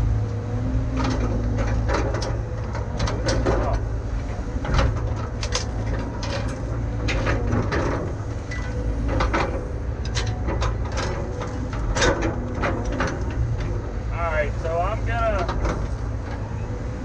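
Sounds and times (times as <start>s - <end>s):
diesel engine running: 0.0s - 17.0s
sharp knocks and clanks: 0.9s - 16.6s.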